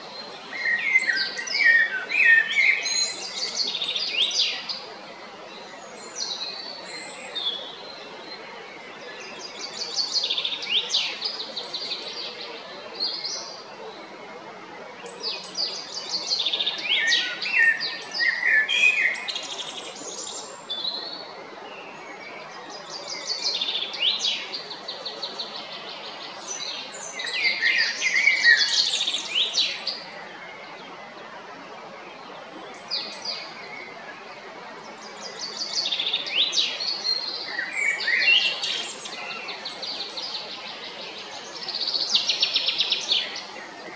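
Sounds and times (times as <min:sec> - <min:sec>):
blackbird singing: 0:00.5 - 0:04.8, 0:15.2 - 0:21.2, 0:22.9 - 0:30.1, 0:35.2 - 0:43.8.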